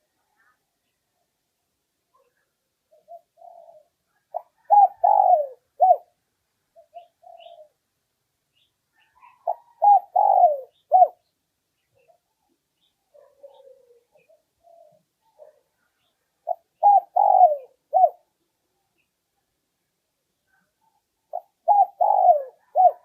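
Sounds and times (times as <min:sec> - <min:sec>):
dove cooing: 0:02.2 - 0:07.8, 0:09.0 - 0:11.3, 0:13.1 - 0:15.8, 0:16.4 - 0:18.4, 0:20.5 - 0:23.0.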